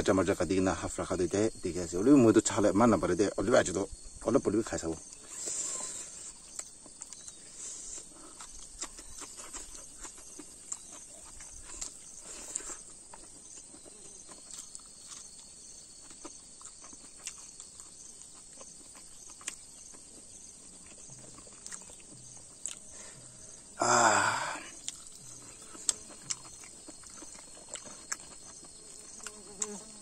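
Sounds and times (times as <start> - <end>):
insects chirring: 0.0 - 30.0
wet chewing and lip smacks: 6.3 - 22.9, 24.8 - 29.9.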